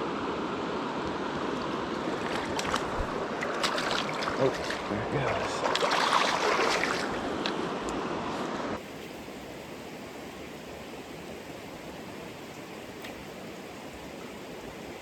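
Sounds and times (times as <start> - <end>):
stream water rushing over rocks: 0.1 - 8.4.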